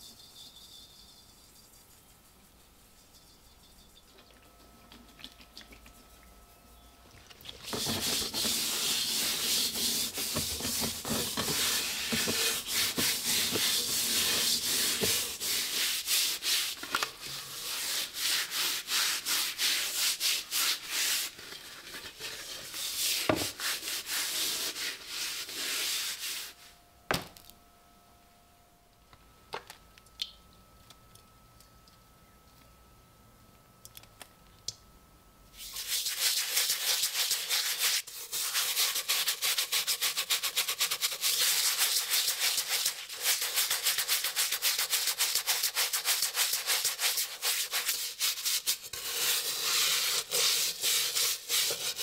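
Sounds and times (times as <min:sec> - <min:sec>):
sanding on steel helmet: 0:07.7 - 0:16.8, 0:17.4 - 0:26.6, 0:35.6 - 0:52.0.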